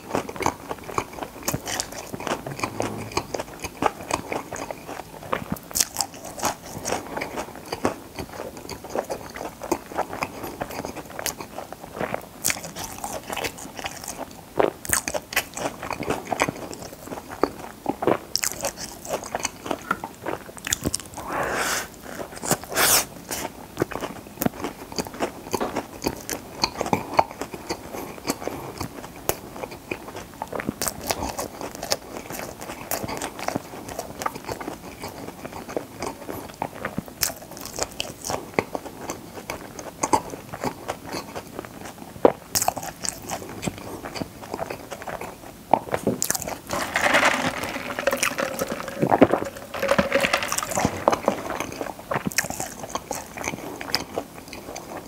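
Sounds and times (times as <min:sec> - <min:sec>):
sipping from a cup: 0:02.3 - 0:03.4, 0:21.2 - 0:23.4, 0:46.6 - 0:51.6.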